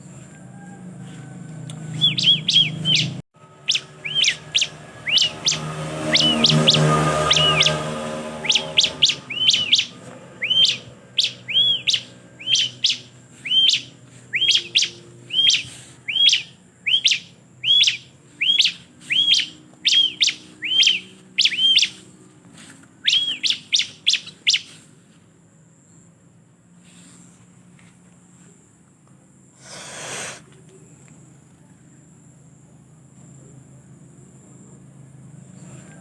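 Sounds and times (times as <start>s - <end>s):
bird calling with sharp chirps: 1.8s - 22.2s, 23.0s - 24.9s.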